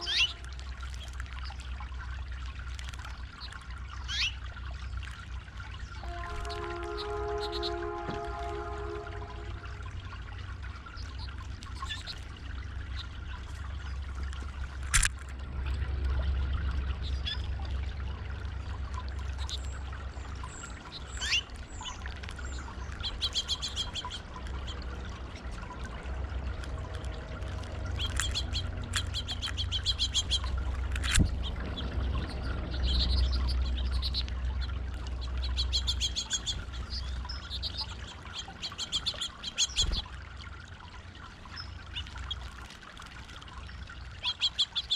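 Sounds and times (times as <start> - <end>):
small birds chirping: 0.0 - 7.8, 10.4 - 14.6, 16.1 - 18.1, 18.9 - 40.1, 44.0 - 44.9
water pouring over stone fountain: 0.0 - 44.9
sharp clicks: 14.3 - 15.3, 30.3 - 31.4.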